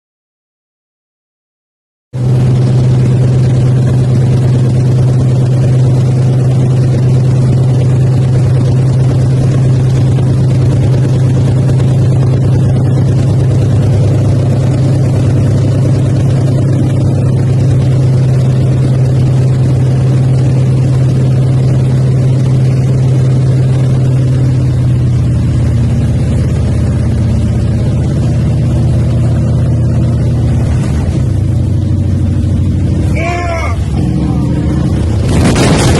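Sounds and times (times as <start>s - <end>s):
radial engine droning: 26.6s - 35.9s.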